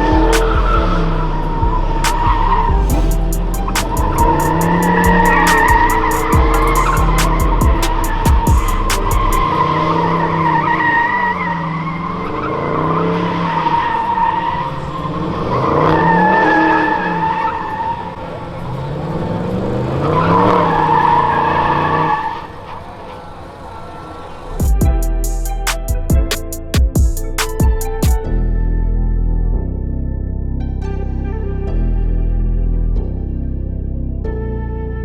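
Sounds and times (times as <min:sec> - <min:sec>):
tyres squealing: 0:00.0 - 0:28.0
car engine revving: 0:00.0 - 0:28.2.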